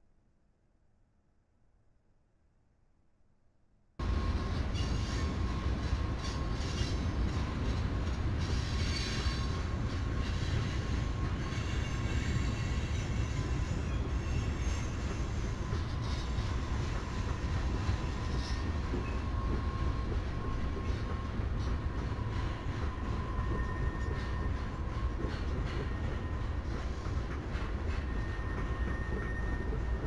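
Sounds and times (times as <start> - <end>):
train wheels rumbling on rail: 4.0 - 30.0
thin wheel squeal: 23.2 - 24.5, 28.0 - 30.0.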